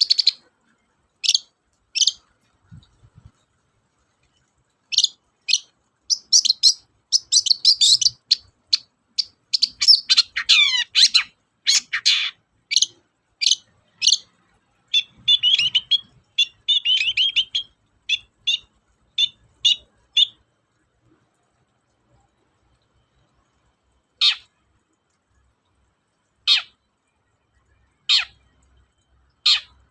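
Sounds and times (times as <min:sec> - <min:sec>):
bird singing harsh chattering notes: 0:04.9 - 0:20.4.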